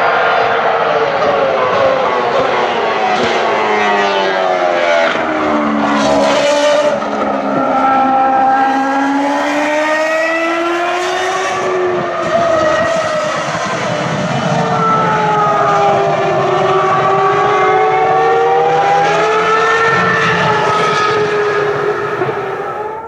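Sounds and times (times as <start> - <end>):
racing car engines at high revs: 0.0 - 23.0.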